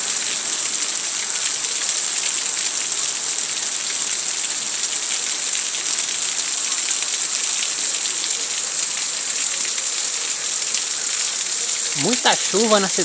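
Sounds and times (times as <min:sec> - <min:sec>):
heavy rain falling: 0:11.0 - 0:13.0.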